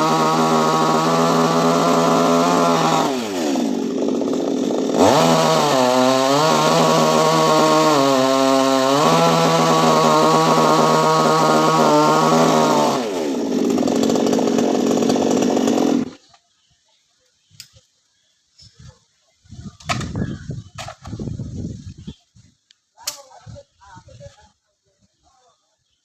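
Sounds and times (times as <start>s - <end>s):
chainsaw cutting wood: 0.0s - 16.3s.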